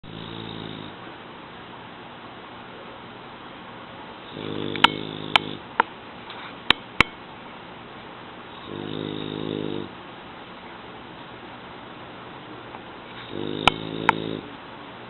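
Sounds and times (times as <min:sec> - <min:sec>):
dog snoring: 0:00.0 - 0:01.0, 0:04.2 - 0:05.6, 0:08.5 - 0:10.0, 0:13.1 - 0:14.5.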